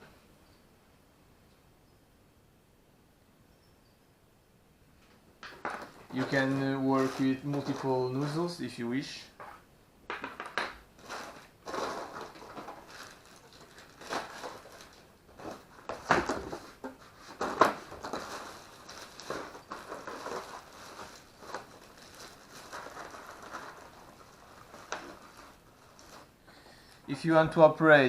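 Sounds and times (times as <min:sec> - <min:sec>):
plastic parts clicking and knocking: 0:05.4 - 0:07.9, 0:10.1 - 0:21.6.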